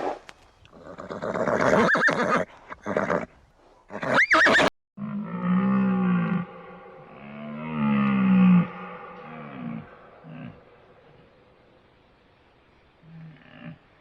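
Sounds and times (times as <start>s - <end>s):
horse neighing and blowing: 0.0s - 3.3s, 3.9s - 4.7s
large animal low calls: 5.0s - 11.6s, 13.0s - 14.0s
high wavering whinny: 5.0s - 11.8s.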